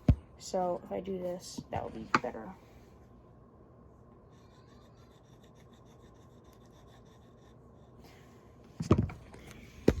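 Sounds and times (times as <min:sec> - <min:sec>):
loud knocks of parts: 0:08.8 - 0:10.0.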